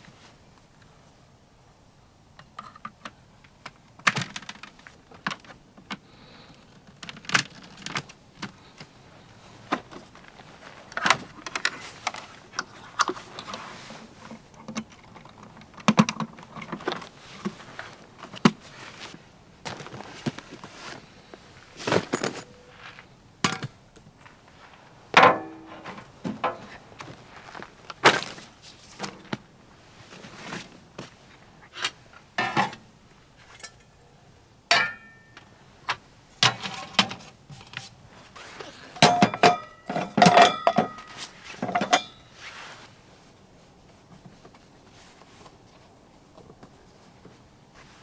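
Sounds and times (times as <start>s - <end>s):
objects being handled: 6.7s - 32.8s.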